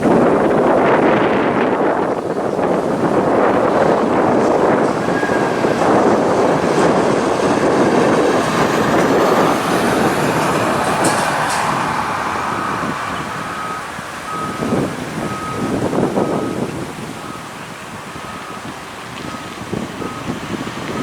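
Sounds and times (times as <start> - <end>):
heavy truck rumbling past: 0.0 - 21.0
short beeps: 12.5 - 16.6.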